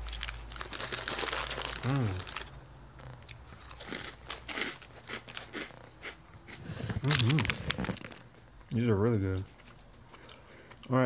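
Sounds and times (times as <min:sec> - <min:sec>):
person chewing crunchy snacks: 0:00.0 - 0:08.3, 0:09.4 - 0:11.0
person humming: 0:01.8 - 0:02.2, 0:06.7 - 0:07.9.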